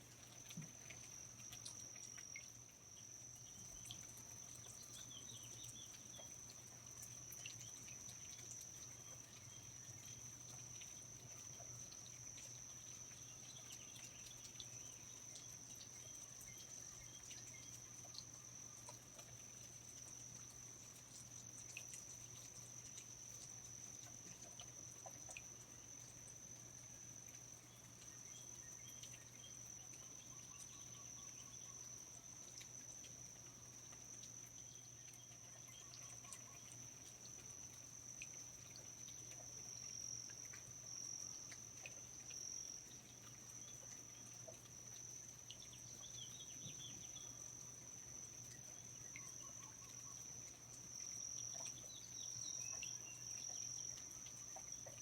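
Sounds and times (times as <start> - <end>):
insect trill: 0.0 - 55.0.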